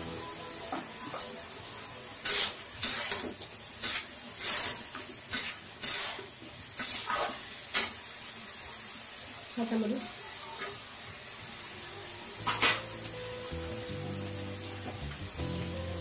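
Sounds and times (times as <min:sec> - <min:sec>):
faint sizzle: 0:00.0 - 0:16.0
spatula scraping a frying pan: 0:02.1 - 0:08.0.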